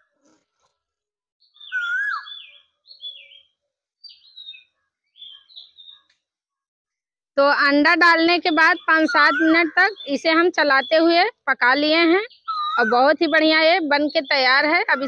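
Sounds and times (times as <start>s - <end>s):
bird calling: 1.5s - 6.2s, 8.5s - 11.3s, 12.0s - 15.0s.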